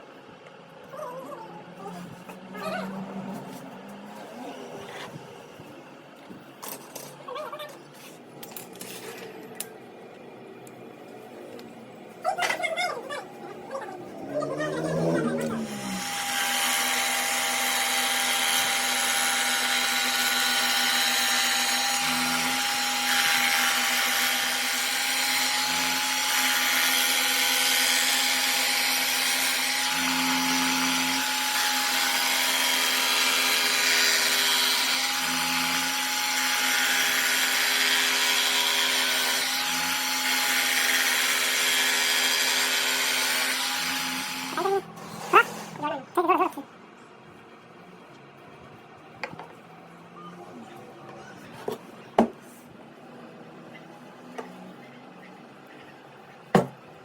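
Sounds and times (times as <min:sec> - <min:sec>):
power tool motor running: 0:14.1 - 0:45.8.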